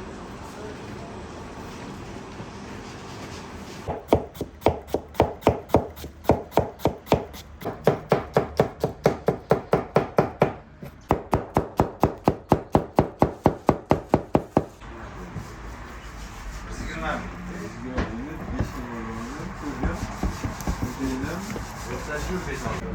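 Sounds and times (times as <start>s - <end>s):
knife chopping on cutting board: 3.9s - 14.8s, 19.8s - 21.7s.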